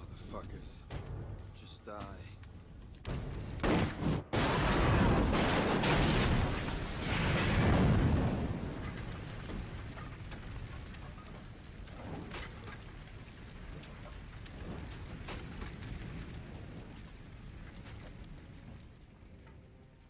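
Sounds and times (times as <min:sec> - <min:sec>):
faint crackles and ticks: 0:00.0 - 0:03.6, 0:06.0 - 0:20.0.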